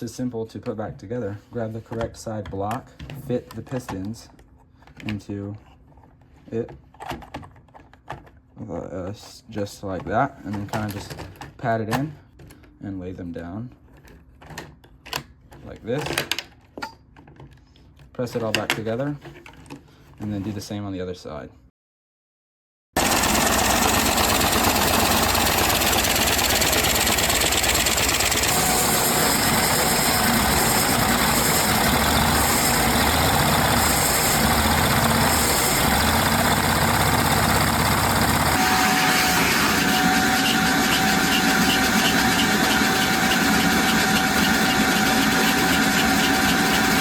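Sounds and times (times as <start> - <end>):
toy engine mechanical whir: 23.0 - 47.0.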